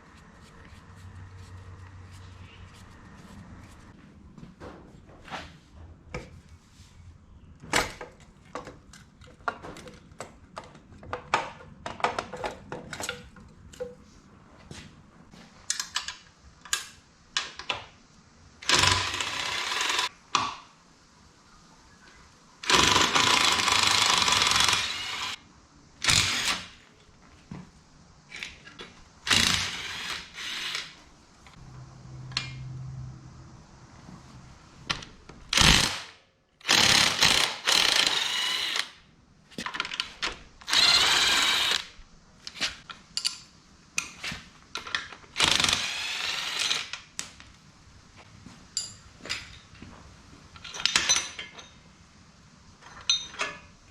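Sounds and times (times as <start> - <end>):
power tool bursts: 18.6 - 20.1, 22.6 - 25.4, 26.0 - 26.8, 29.2 - 31.0, 35.5 - 39.0, 40.7 - 41.9, 45.4 - 47.0.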